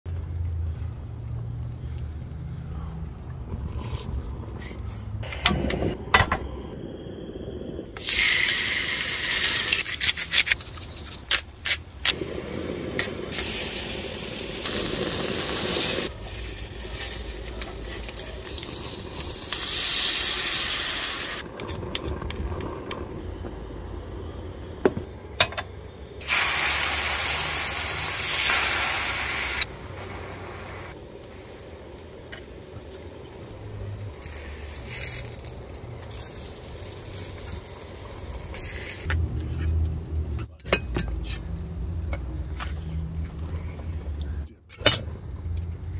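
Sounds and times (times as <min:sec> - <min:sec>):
meat sizzling in a skillet: 0:13.3 - 0:21.4, 0:26.2 - 0:30.9.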